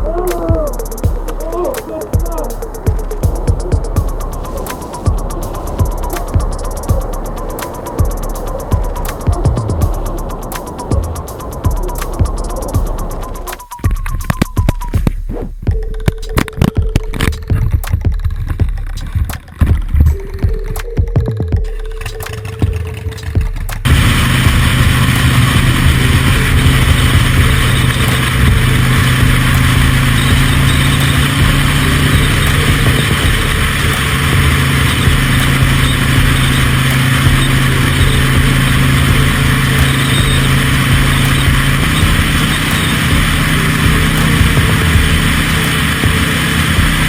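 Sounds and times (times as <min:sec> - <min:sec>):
vehicle engine running: 0:00.0 - 0:47.0
wind and road noise: 0:00.0 - 0:47.0.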